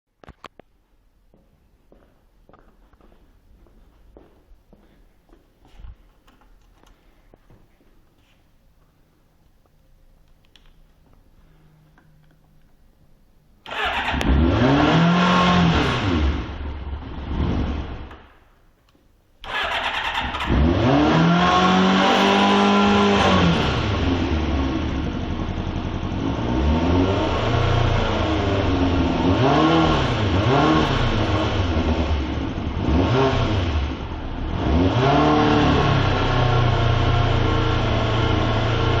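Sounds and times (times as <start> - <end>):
motorcycle engine starting and revving: 13.6 - 18.5, 19.4 - 39.0.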